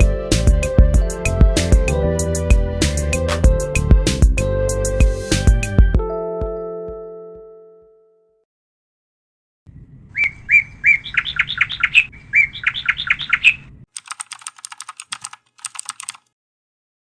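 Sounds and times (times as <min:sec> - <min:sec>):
bird call notes: 0:09.7 - 0:13.9
bird rattling chatter: 0:09.7 - 0:16.3.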